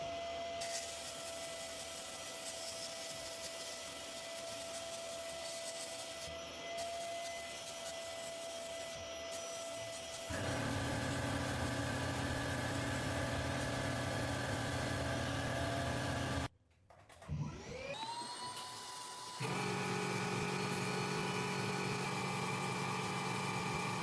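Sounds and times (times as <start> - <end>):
power tool motors running: 3.1 - 16.5, 17.5 - 24.0
motor spinning up with whine: 10.3 - 16.5, 17.4 - 24.0.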